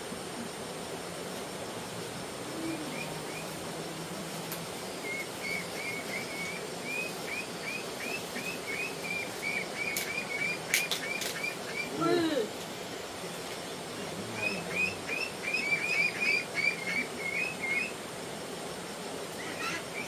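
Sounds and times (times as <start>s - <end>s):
bird chirping: 5.0s - 12.0s, 13.6s - 18.0s.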